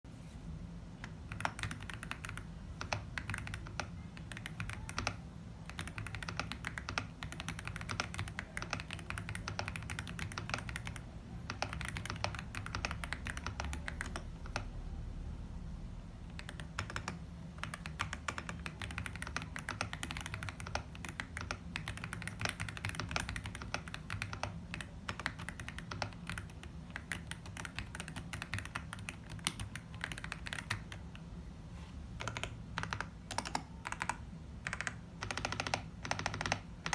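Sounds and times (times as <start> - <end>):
steady low hum: 0.0 - 36.9
mechanical keyboard typing: 1.0 - 14.9, 16.2 - 31.2, 32.2 - 36.9.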